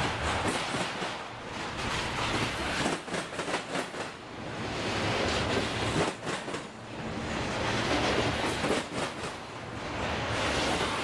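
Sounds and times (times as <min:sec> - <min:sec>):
train wheel clacks: 0:00.0 - 0:04.2, 0:05.2 - 0:06.8, 0:07.7 - 0:09.5
freight train rumbling past: 0:00.0 - 0:11.0.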